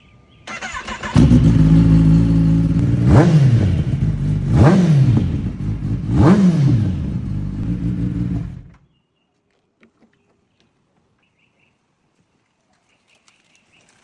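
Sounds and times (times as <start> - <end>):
motorcycle engine revving: 0.5 - 8.8.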